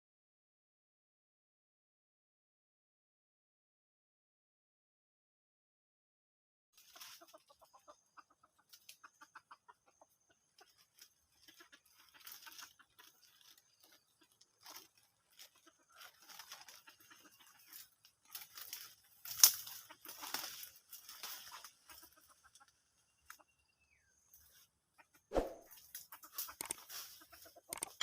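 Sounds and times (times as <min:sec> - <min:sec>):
rustling of dry leaves: 0:06.8 - 0:09.5, 0:10.3 - 0:23.0, 0:25.7 - 0:28.0
chicken clucking: 0:06.8 - 0:28.0.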